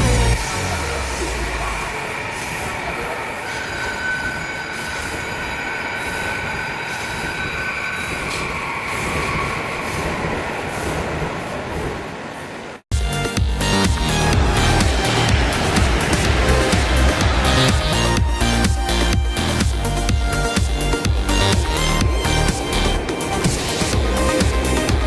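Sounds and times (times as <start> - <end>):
train rushing on rails: 0.0 - 25.0
high whine: 13.0 - 25.0.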